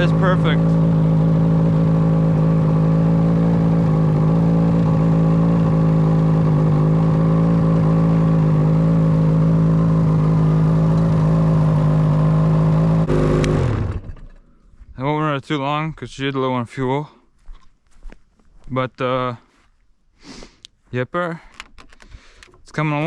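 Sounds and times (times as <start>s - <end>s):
snowmobile engine idling: 0.0s - 14.6s.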